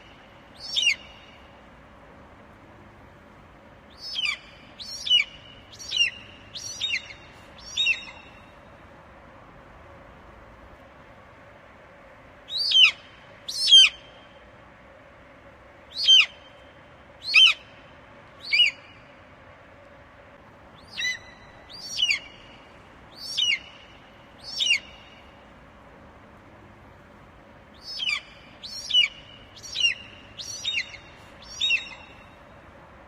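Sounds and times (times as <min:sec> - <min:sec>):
eagle calling: 0:00.6 - 0:01.3, 0:04.0 - 0:08.4, 0:20.8 - 0:22.6, 0:23.2 - 0:23.8, 0:24.4 - 0:25.1, 0:27.8 - 0:32.3.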